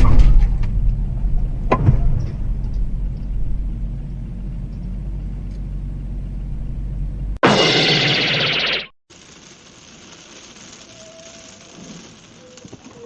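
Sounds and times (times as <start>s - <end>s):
car rumbling on the move: 0.2s - 7.4s
brief sharp sound: 7.4s - 9.0s.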